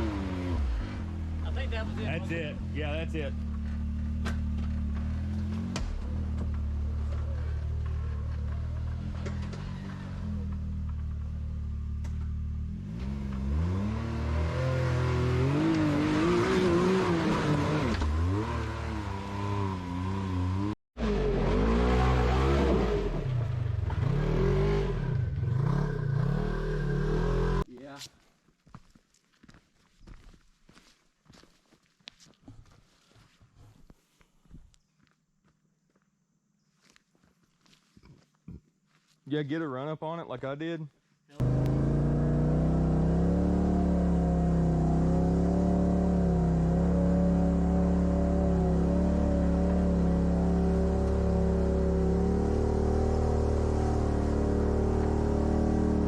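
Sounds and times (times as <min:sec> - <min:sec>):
vehicle engine revving: 0:00.0 - 0:27.7, 0:41.4 - 0:56.0.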